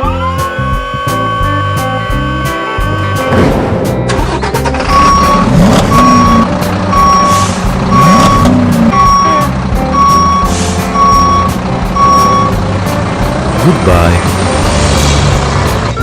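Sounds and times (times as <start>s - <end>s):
low engine rumble: 1.0s - 16.0s
truck reversing alarm beeping: 4.4s - 12.6s.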